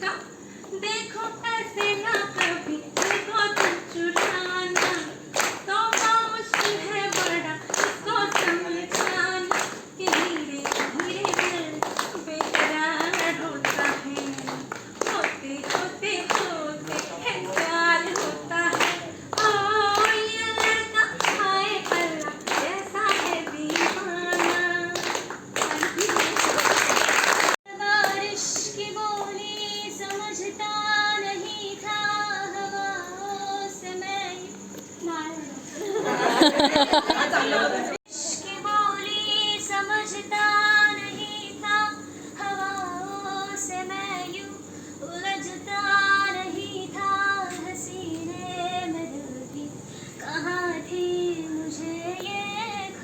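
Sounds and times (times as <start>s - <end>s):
woman singing wordless melody: 0.0s - 35.8s, 38.1s - 53.0s
group singing unaccompanied: 1.8s - 26.6s
hands clapping steady beat: 1.8s - 29.4s.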